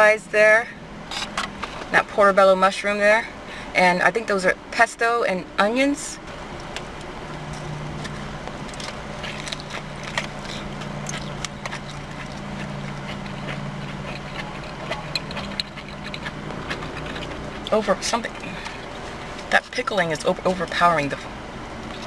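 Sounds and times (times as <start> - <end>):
steady low hum: 0.0 - 22.0
person biting and chewing: 6.6 - 19.4
mouth clicks and crackles: 6.6 - 22.0.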